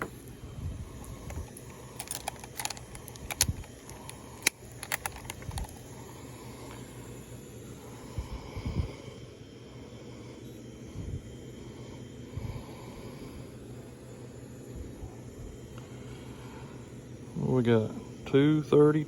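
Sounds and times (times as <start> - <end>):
sharp clicks and light knocks: 1.3 - 5.8.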